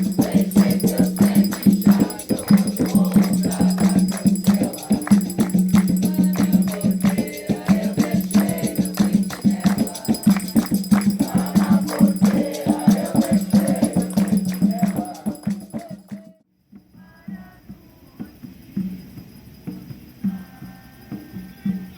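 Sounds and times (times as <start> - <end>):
group of voices chanting: 0.0 - 16.4
hand percussion and rattles: 0.0 - 17.0.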